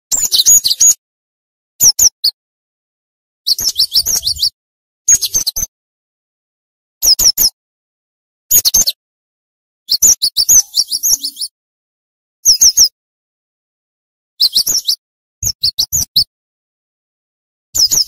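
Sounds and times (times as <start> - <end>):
bird whistling song: 0.1 - 1.0, 1.8 - 2.4, 3.5 - 5.7, 7.0 - 7.6, 8.5 - 9.0, 9.9 - 11.6, 12.4 - 13.0, 14.4 - 16.3, 17.8 - 18.0.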